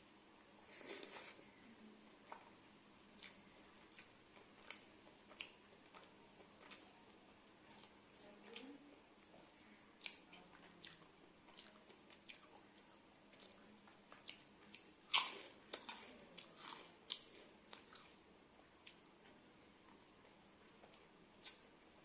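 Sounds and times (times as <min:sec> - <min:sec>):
chewing rice: 0:02.2 - 0:22.0
crunchy bite: 0:14.3 - 0:16.0.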